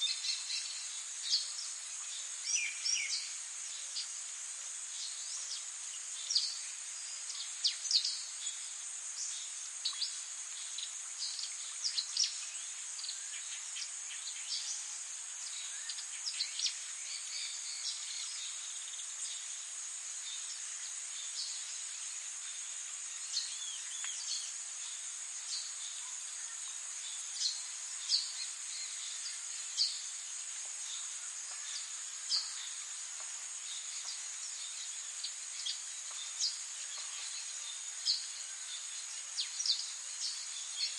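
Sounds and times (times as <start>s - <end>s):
high-pitched insect trill: 0.0s - 40.9s
small birds chirping: 20.2s - 40.9s.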